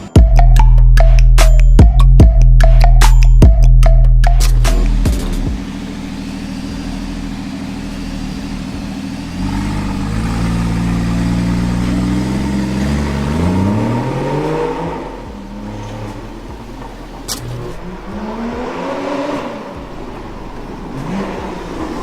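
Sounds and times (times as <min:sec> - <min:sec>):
sports car engine revving: 0:04.4 - 0:22.0.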